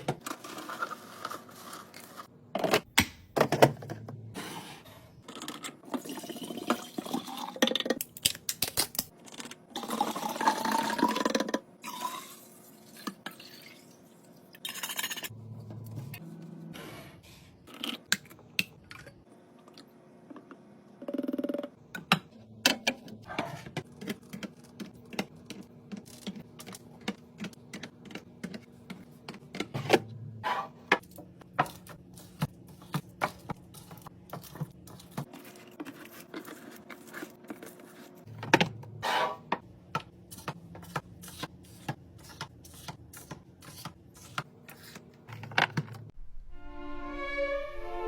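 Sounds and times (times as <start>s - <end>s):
items clicking on fridge shelves: 0.0s - 4.3s, 21.9s - 46.2s.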